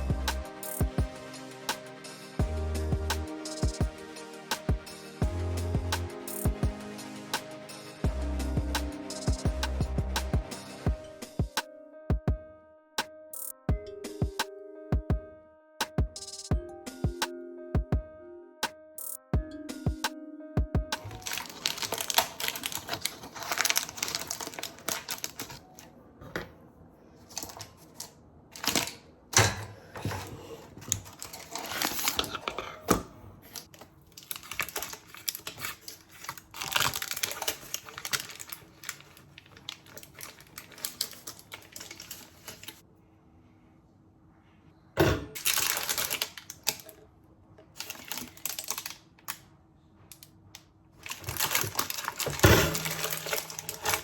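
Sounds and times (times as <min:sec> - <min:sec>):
utensils and dishes clicking: 0:51.1 - 0:54.0.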